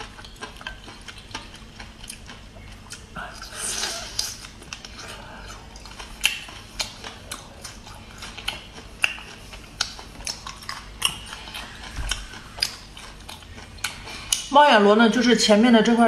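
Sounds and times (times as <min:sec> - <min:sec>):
wet chewing clicks and smacks: 0:00.0 - 0:03.5, 0:04.1 - 0:14.5.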